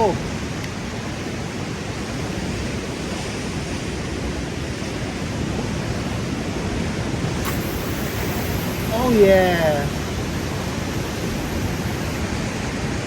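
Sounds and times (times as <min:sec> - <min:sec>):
sea water washing against rocks: 0:05.4 - 0:13.0.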